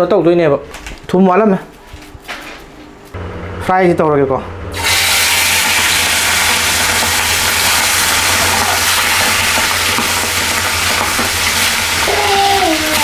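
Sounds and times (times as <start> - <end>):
octopus deep-frying in oil: 4.7 - 13.0.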